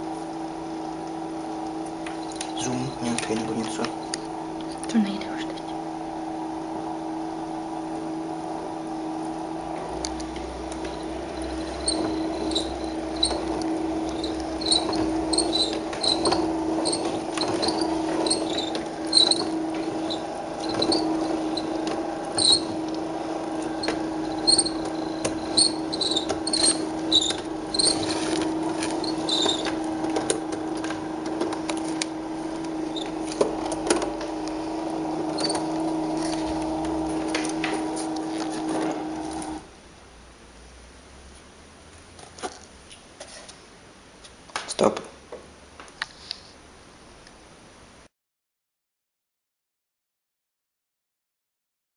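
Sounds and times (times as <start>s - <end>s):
small electric motor running: 2.0s - 5.4s, 10.5s - 39.6s.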